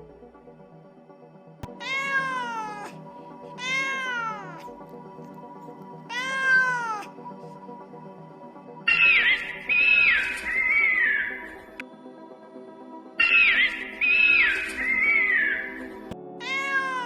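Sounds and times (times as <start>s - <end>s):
quiet background music: 0.0s - 17.0s
cat meowing: 1.7s - 3.0s, 3.6s - 4.7s, 6.1s - 7.1s, 16.4s - 17.0s.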